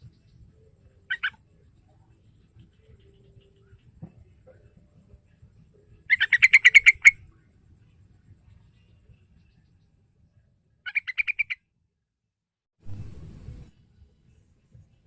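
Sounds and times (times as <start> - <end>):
bird chattering call: 1.1 - 1.4, 6.1 - 7.2, 10.9 - 11.6.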